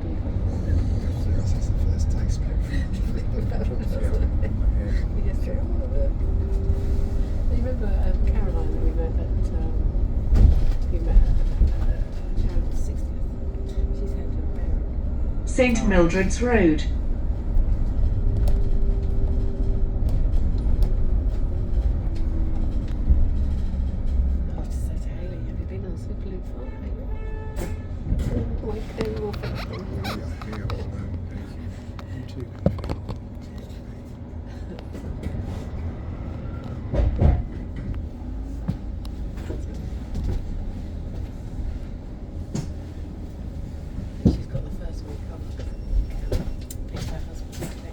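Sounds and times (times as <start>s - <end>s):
low road rumble: 0.0s - 47.9s
bus thump or rattle: 10.2s - 12.9s.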